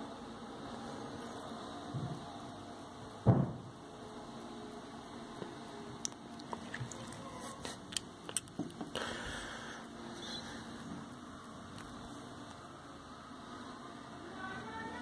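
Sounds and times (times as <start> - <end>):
low indoor hum: 0.0 - 15.0
loud thump: 3.2 - 3.7
small clicks and taps: 5.3 - 9.0.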